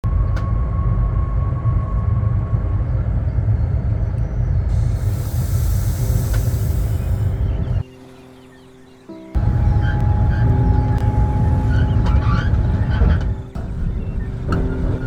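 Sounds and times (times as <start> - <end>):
train rumbling: 0.0 - 15.0
high hiss: 4.7 - 7.9.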